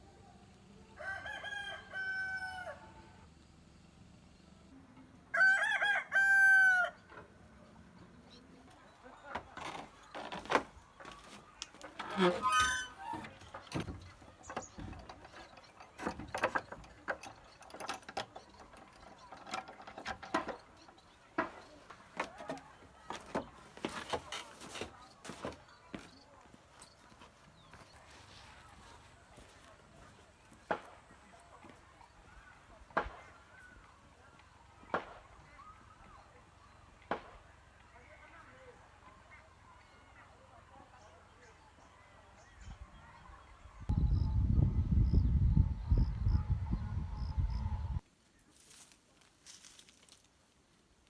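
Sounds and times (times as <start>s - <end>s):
rooster crowing: 1.0s - 3.2s, 5.3s - 7.1s
sharp knocks and clicks: 13.2s - 24.4s.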